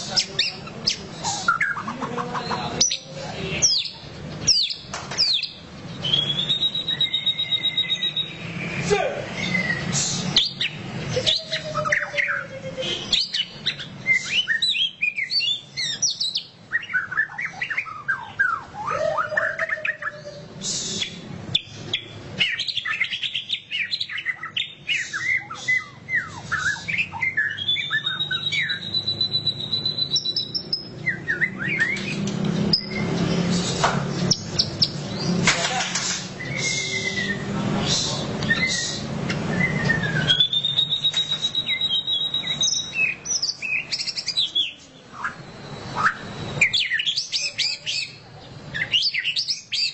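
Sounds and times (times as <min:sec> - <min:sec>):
bird singing rapid chirps: 0:00.0 - 0:49.9.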